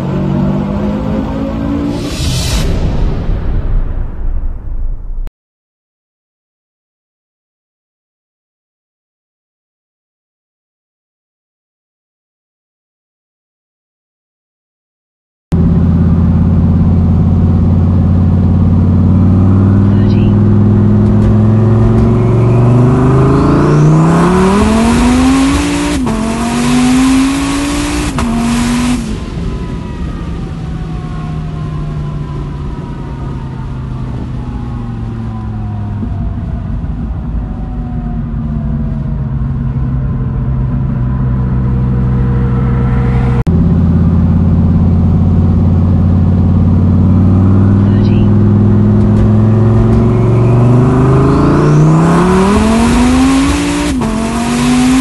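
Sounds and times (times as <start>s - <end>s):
car engine at full throttle: 0.0s - 3.2s, 15.5s - 55.0s.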